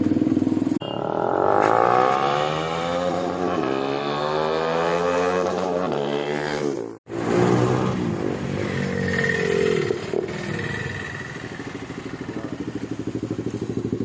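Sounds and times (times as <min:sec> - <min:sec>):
motorcycle engine running: 0:00.0 - 0:02.4, 0:08.0 - 0:14.0.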